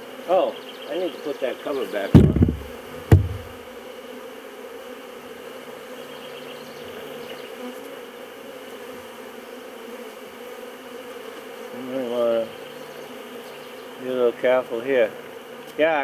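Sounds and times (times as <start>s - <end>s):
honeybees humming: 2.2s - 3.6s.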